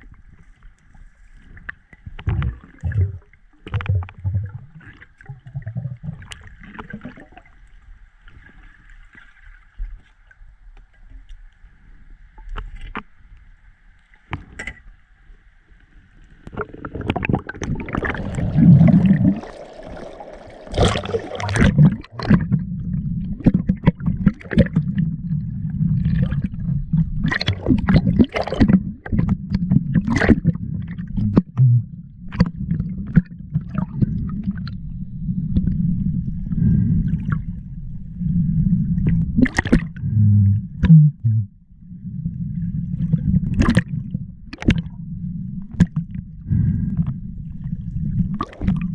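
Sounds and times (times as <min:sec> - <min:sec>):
water rushing and gurgling: 0:16.5 - 0:29.4.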